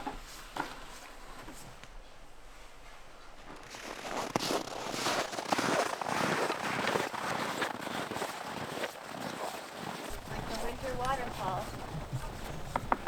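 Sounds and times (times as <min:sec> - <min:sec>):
crackling and crunching: 0:02.7 - 0:08.6.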